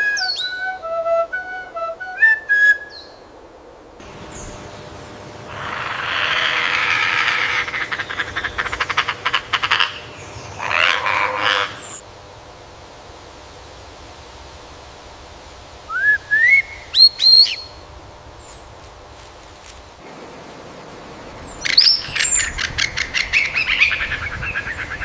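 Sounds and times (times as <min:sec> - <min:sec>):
bird harsh rasping call: 0:05.5 - 0:12.0, 0:16.4 - 0:17.8
clear whistled bird note: 0:15.9 - 0:17.8.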